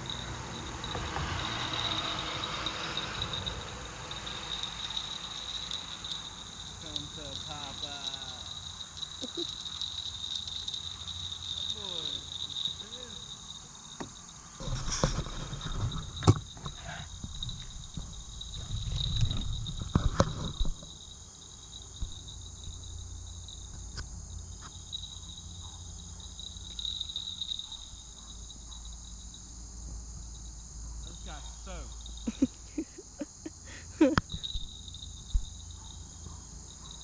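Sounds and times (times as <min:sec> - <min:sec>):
rustling: 0:00.0 - 0:22.8
crickets chirring: 0:00.0 - 0:37.0.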